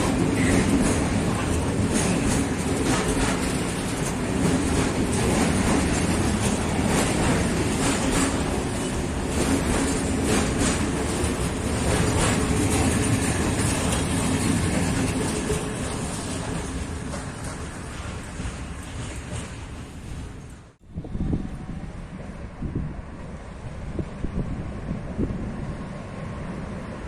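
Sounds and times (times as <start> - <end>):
train wheels clattering over rail joints: 0.0 - 20.7.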